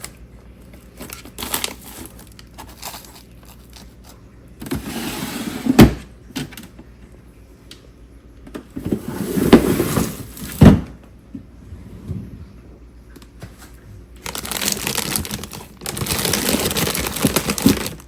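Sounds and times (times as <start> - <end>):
objects scraping as they slide: 4.7 - 5.8.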